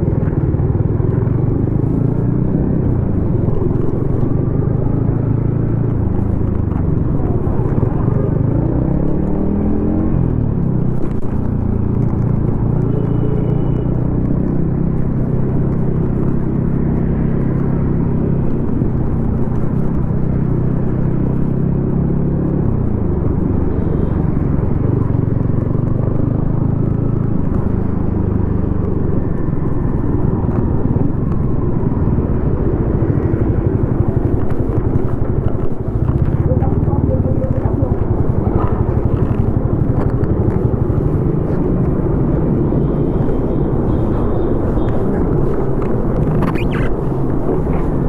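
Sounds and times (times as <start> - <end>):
motorcycle engine running: 32.0 - 48.0.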